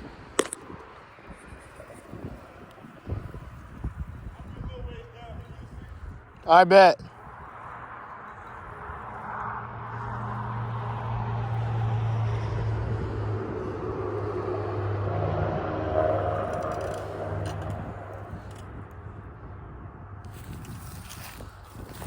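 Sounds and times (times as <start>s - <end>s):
engine passing by: 7.2s - 20.8s.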